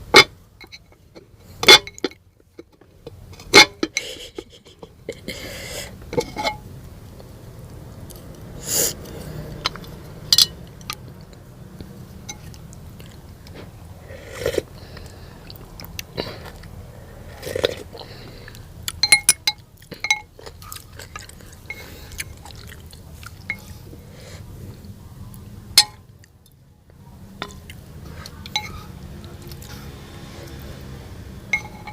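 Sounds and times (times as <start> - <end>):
utensils clinking against bowl: 6.2 - 6.7, 19.0 - 20.3, 28.4 - 29.0, 31.5 - 31.9.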